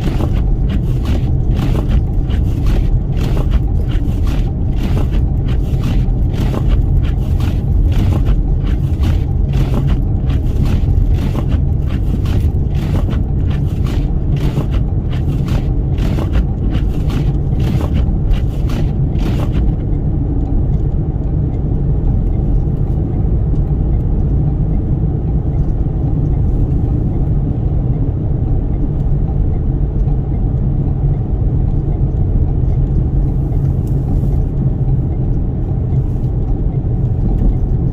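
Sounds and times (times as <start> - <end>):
rapid irregular ticking: 0.0 - 20.1
road and wind rumble: 0.0 - 37.9.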